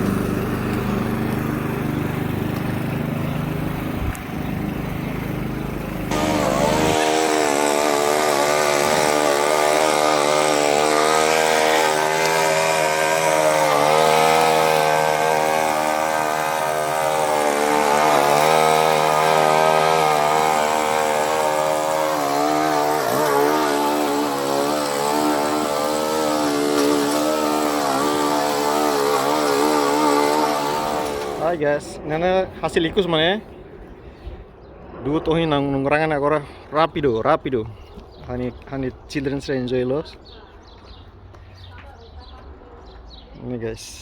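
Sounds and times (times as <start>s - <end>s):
lawnmower engine mowing: 0.0s - 31.6s.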